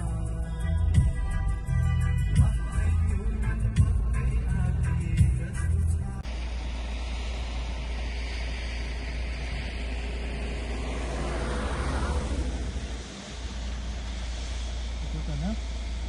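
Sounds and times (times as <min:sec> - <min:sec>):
car engine and tyres rumbling: 0:00.0 - 0:16.0
rushing noise: 0:06.2 - 0:16.0.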